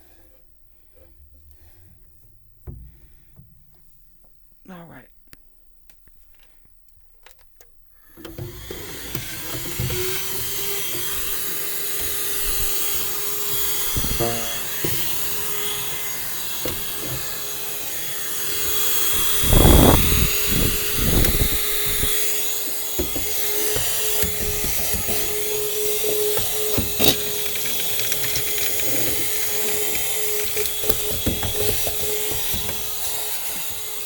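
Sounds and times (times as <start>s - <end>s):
vacuum cleaner running: 8.1s - 34.0s.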